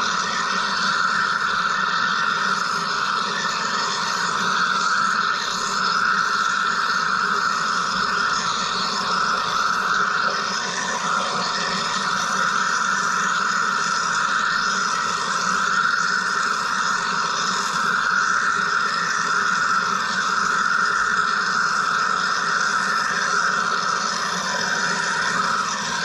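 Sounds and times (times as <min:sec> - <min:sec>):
machine whirring with steady tones: 0:00.0 - 0:26.0.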